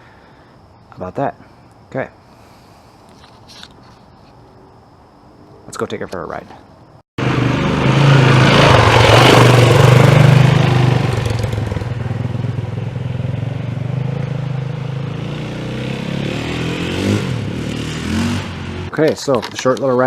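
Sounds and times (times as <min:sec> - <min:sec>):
dirt bike engine running: 0:07.2 - 0:18.9.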